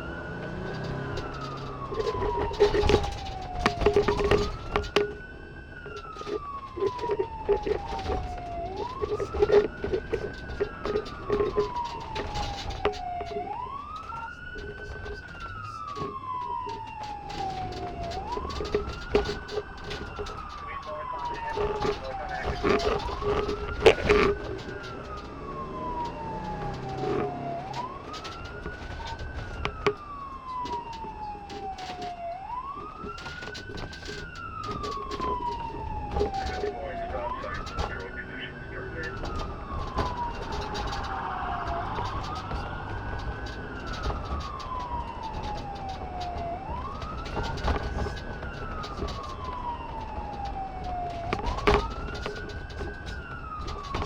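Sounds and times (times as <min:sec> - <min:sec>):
police car siren wailing: 0:00.0 - 0:54.0
scattered clicks and knocks: 0:00.0 - 0:54.0.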